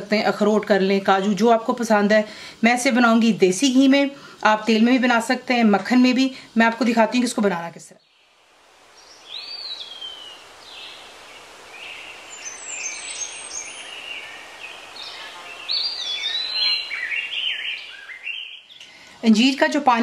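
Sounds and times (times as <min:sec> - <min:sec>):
steady hiss: 0:00.0 - 0:20.0
birds chirping and singing: 0:09.0 - 0:19.0.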